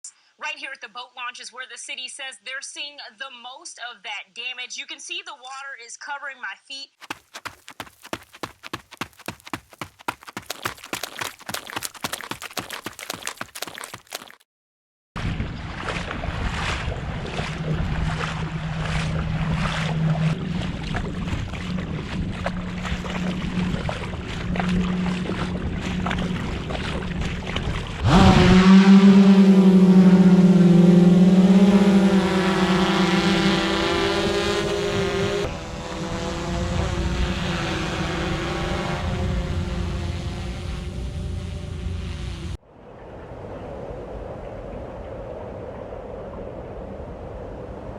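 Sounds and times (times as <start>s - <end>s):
water splashing: 7.0s - 14.4s, 15.7s - 28.0s
wind: 7.0s - 14.4s, 15.2s - 47.9s
jet ski engine whine: 17.5s - 42.6s.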